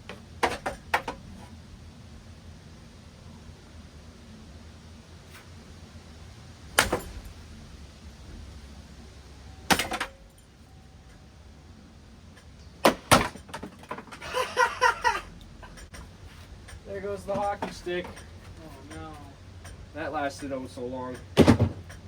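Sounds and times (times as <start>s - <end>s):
hockey stick striking ceiling fan: 6.8s - 7.3s, 12.8s - 14.1s.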